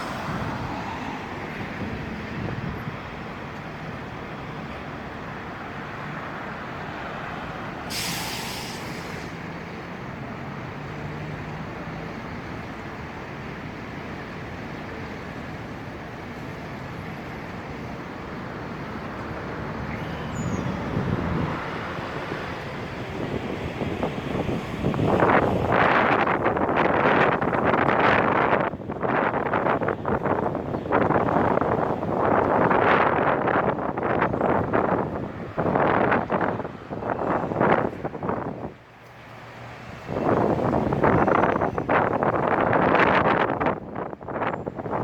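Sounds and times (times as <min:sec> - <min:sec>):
street traffic: 0:00.0 - 0:45.0
wind: 0:00.0 - 0:45.0
air brake hissing: 0:07.8 - 0:09.5.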